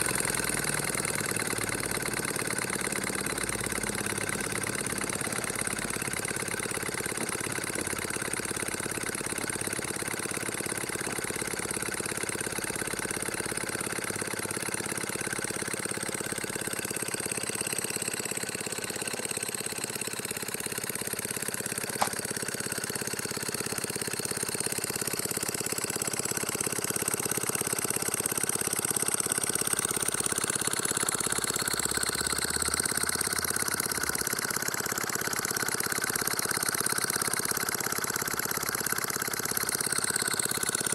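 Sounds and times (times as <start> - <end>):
sharp click: 22.0 - 22.3.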